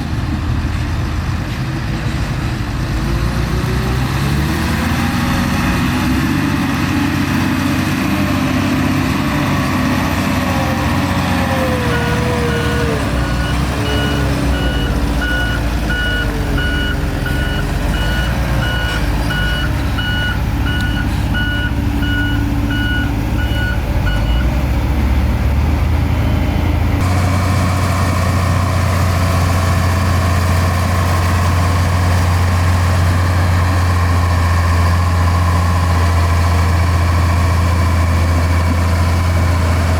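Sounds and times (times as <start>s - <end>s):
deep diesel drone: 0.0s - 39.9s
heavy diesel machinery running: 0.0s - 39.9s
reversing alarm beeps: 11.9s - 24.5s.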